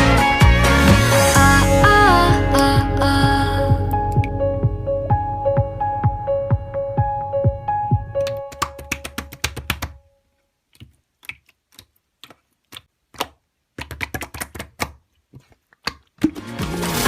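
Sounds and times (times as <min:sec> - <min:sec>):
background music: 0:00.0 - 0:09.4, 0:16.2 - 0:17.0
sharp clicks and taps: 0:08.2 - 0:10.0.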